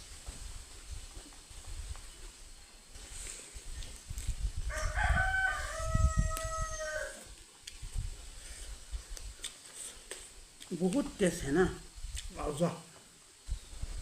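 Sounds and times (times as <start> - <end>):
rooster crowing: 4.7 - 7.3.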